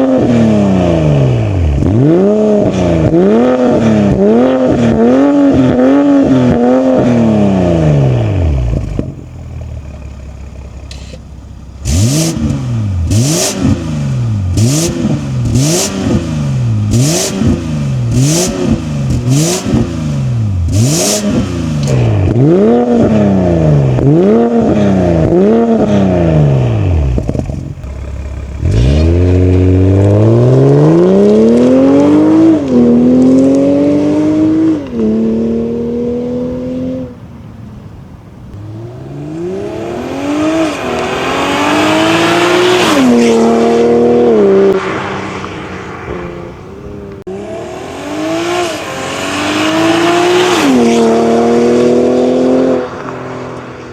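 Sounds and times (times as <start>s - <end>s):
car engine revving: 0.0s - 53.9s
car accelerating through gears: 11.8s - 27.6s, 28.5s - 37.2s, 38.5s - 53.9s.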